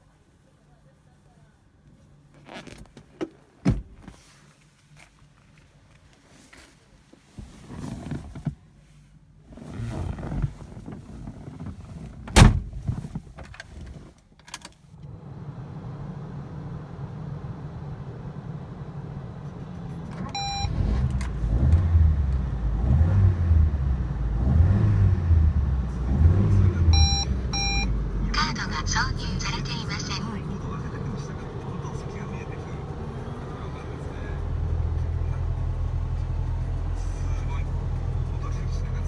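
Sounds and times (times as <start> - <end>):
car engine rumbling: 7.3 - 14.1, 15.0 - 39.0
sharp thunk: 12.4 - 12.9
short electronic beep: 20.4 - 20.8, 26.9 - 28.5.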